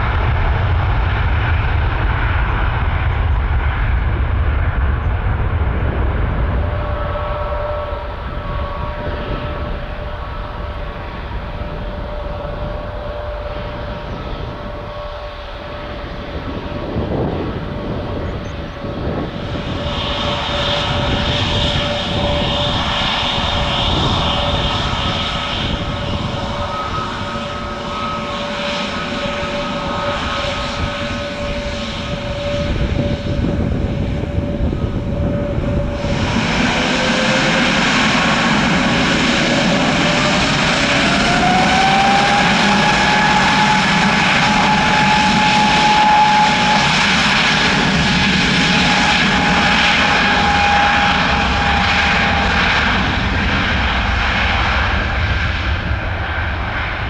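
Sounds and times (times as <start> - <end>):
airliner taxiing: 0.0 - 57.0
jet engines spooling up: 0.0 - 57.0
jet engines whining: 0.0 - 57.0.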